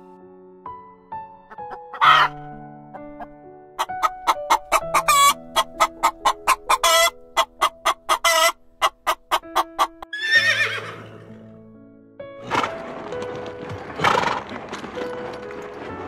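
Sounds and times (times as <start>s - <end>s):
soft background music: 0.0s - 16.0s
chickens clucking: 1.5s - 10.1s.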